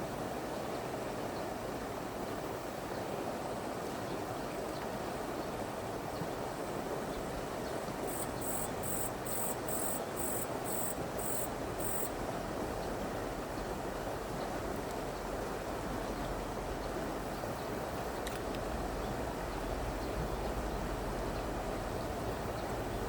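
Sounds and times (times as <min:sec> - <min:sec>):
river flowing: 0:00.1 - 0:23.0
insect chirping: 0:08.0 - 0:12.1.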